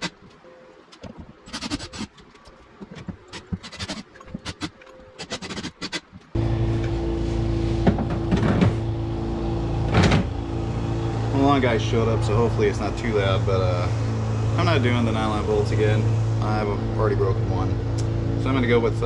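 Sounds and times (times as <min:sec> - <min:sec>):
small engine drone: 0:06.3 - 0:19.0.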